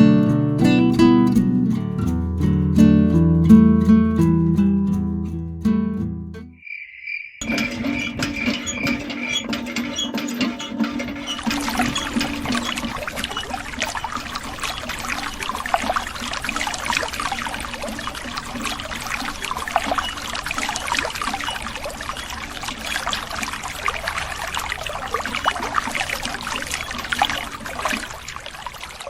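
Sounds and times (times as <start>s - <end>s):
stream trickling and splashing: 7.4s - 29.0s.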